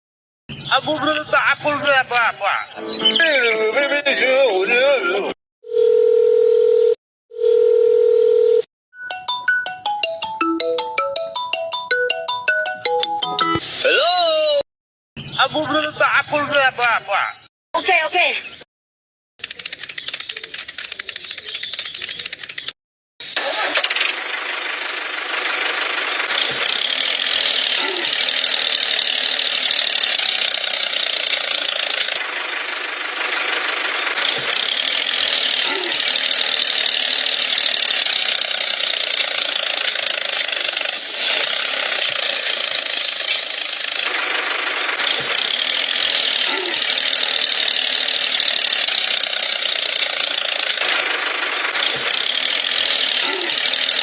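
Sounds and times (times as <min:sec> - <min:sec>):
small machine whirring and rattling: 0:19.4 - 0:54.0.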